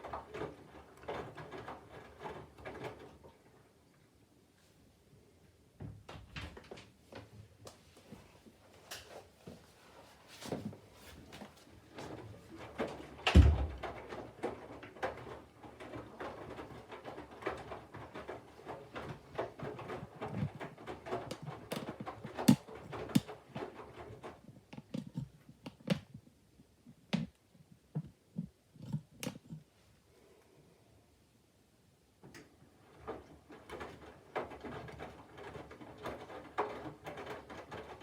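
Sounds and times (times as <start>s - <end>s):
washing machine drum tumbling laundry: 0.0s - 3.8s, 10.3s - 29.8s, 32.2s - 38.0s.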